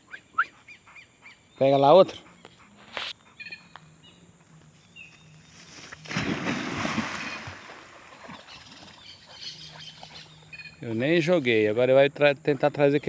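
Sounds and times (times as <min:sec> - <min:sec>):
dog splashing into water: 0:05.8 - 0:09.0.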